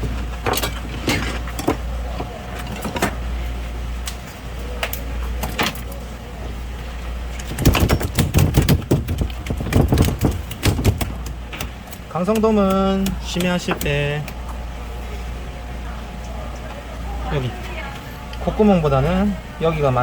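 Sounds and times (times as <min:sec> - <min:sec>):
steady low hum: 0:00.0 - 0:20.0
fish slaps and thuds: 0:07.6 - 0:11.7
knocks and clicks on cutting board: 0:07.6 - 0:11.7.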